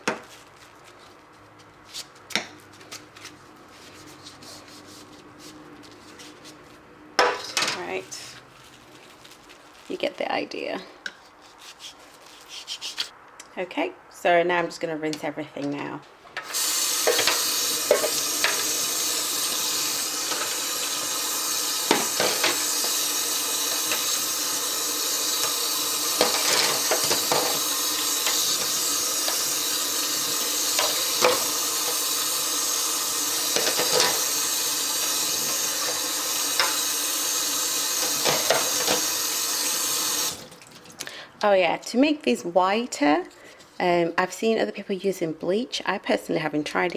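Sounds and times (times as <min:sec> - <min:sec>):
tap running into a sink: 0:16.4 - 0:40.8
parts knocking against sink: 0:21.9 - 0:23.0, 0:26.2 - 0:29.4, 0:33.5 - 0:34.2.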